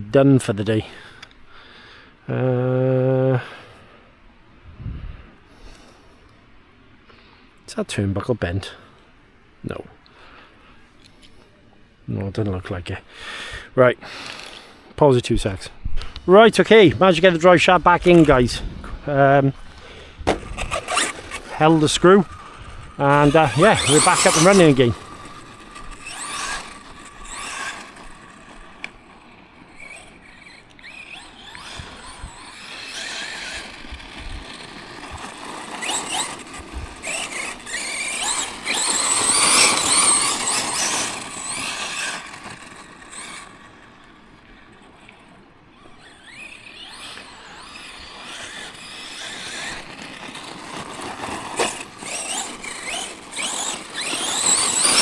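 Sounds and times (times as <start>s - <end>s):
toy truck electric motor whining: 13.3s - 14.7s, 15.3s - 55.0s.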